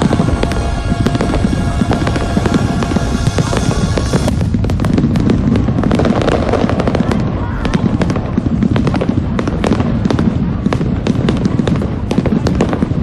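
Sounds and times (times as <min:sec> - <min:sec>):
music: 0:00.0 - 0:04.3
fireworks bangs and crackles: 0:00.0 - 0:13.0.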